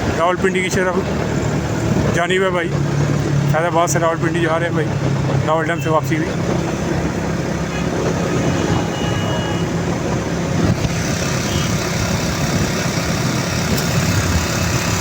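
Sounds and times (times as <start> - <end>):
rushing road and traffic noise: 0.0 - 15.0
vehicle engine hum: 0.0 - 15.0.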